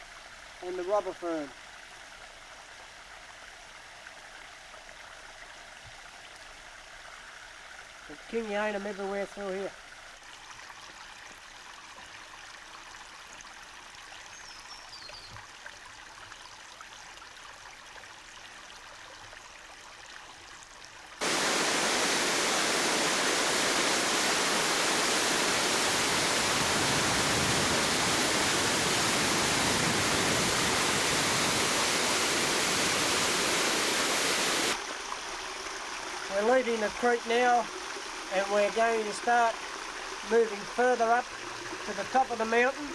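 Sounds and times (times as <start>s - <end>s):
faint creek water: 0.0s - 42.9s
bird chirp: 14.3s - 15.4s
waterfall rushing: 21.2s - 34.8s.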